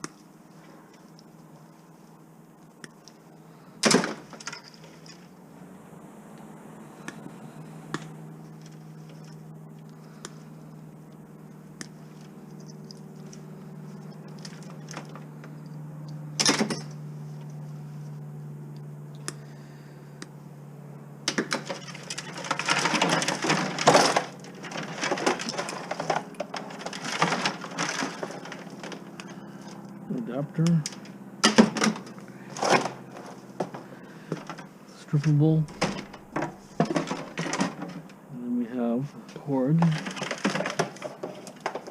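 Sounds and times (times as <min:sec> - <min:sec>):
steady low hum: 0:00.0 - 0:41.9
scrap items clicking and clattering: 0:21.3 - 0:29.3, 0:30.8 - 0:38.1, 0:39.8 - 0:41.9.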